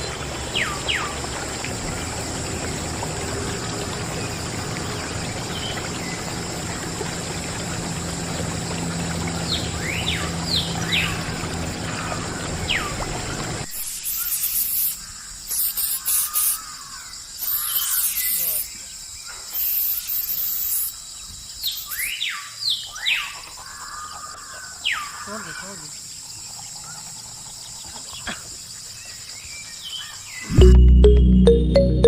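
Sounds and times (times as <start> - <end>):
water trickling and pouring: 0.0 - 13.9, 25.2 - 29.5.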